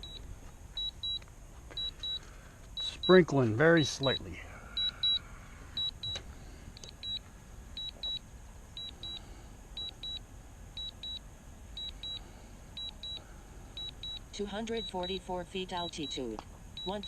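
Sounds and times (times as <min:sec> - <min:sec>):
high double beeps: 0:04.0 - 0:05.2, 0:05.8 - 0:06.2, 0:13.8 - 0:17.0.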